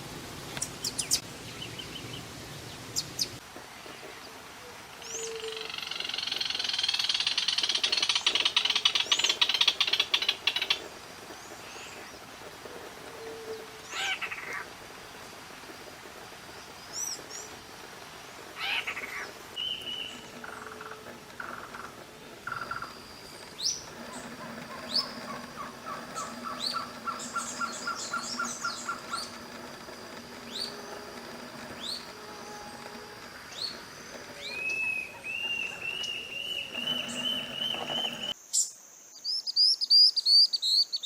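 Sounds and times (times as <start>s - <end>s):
rapid repeated bird notes: 5.5s - 38.4s
harsh bird calls: 18.4s - 38.4s.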